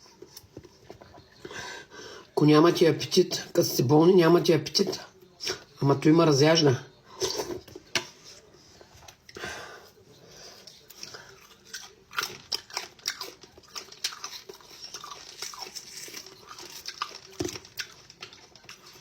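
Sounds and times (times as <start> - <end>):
crunchy chewing: 10.4 - 19.0.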